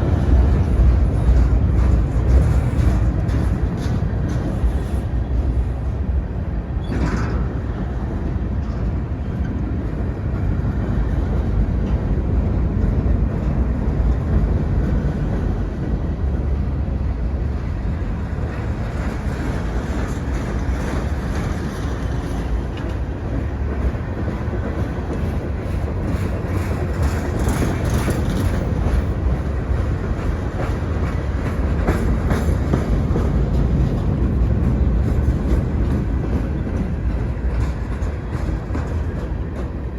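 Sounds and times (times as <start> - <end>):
wheels clicking over rail joints: 0.0 - 5.6, 17.8 - 39.9
freight train rumbling past: 0.0 - 39.9.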